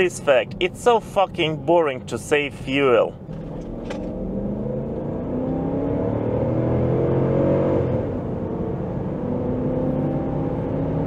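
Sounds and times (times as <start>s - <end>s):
car engine revving under acceleration: 3.2s - 11.0s.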